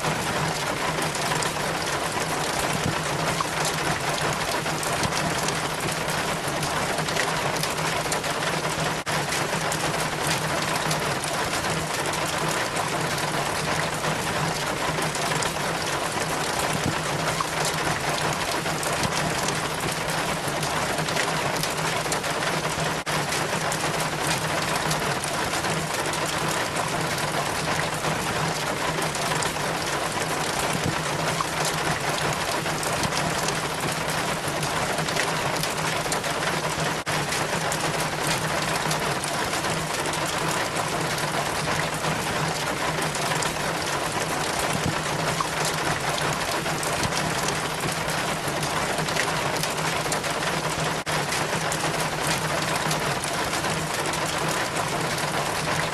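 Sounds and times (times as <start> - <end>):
rainwater trickling down rain chain: 0.0 - 55.9.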